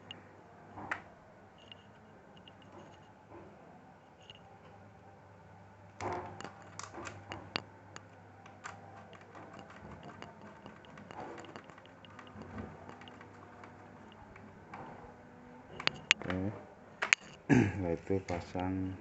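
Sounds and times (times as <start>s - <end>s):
screws and plastic parts clicking: 6.0s - 14.9s, 15.7s - 16.3s, 17.0s - 17.4s.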